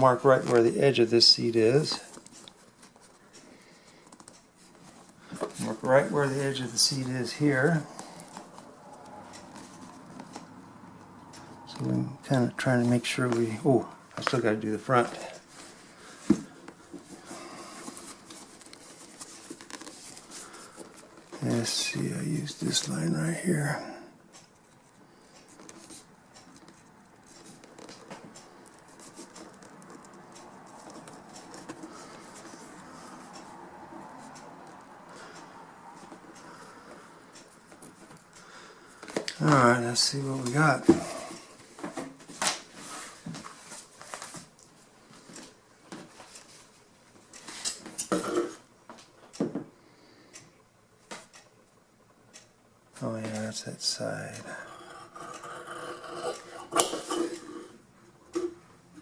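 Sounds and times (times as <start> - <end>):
rustling material: 11.6 - 21.6.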